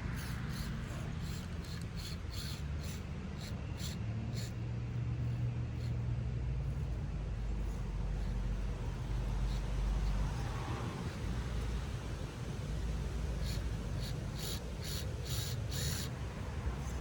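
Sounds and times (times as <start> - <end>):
small motor and gear hum: 0.0 - 17.0
quick ticks: 0.2 - 4.5.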